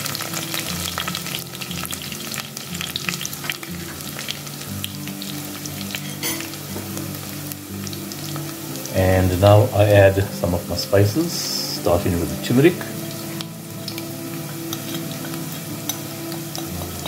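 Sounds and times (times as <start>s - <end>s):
small crackles and pops: 0.0s - 6.1s, 13.2s - 17.0s
onion sizzling in hot oil: 0.0s - 17.0s.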